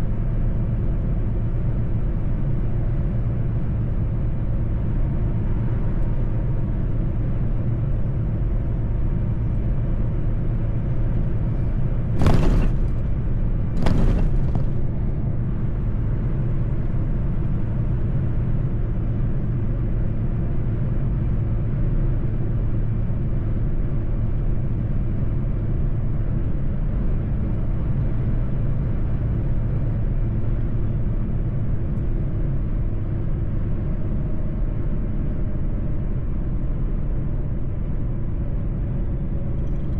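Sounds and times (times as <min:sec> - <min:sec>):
truck engine and road noise: 0:00.0 - 0:39.9
short sharp noises: 0:12.2 - 0:13.2, 0:13.8 - 0:14.9.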